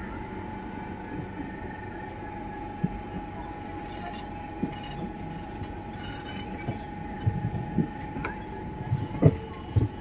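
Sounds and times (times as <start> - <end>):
train wheels rumbling on rails: 0.0 - 10.0
thin wheel squeal: 4.8 - 6.4
wheels knocking on rail joints: 6.0 - 10.0.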